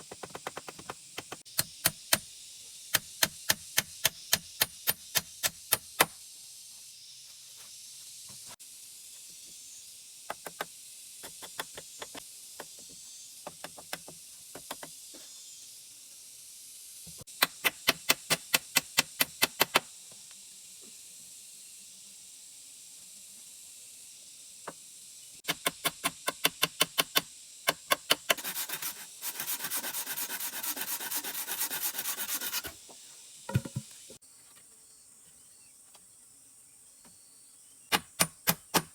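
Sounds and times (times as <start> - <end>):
insect hiss: 0.0 - 38.9
hand tool scraping wood: 28.2 - 34.0
tool rasping wood: 28.3 - 32.8.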